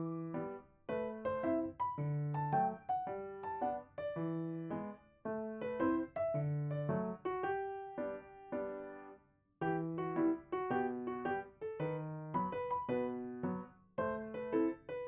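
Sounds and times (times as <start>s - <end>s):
calm piano music: 0.0s - 15.0s.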